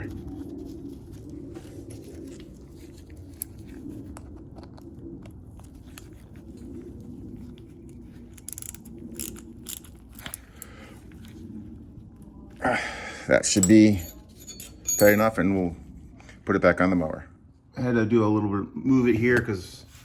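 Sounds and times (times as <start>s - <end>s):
steady low hum: 0.0s - 20.0s
small metal parts clicking: 8.3s - 10.7s, 13.5s - 15.4s.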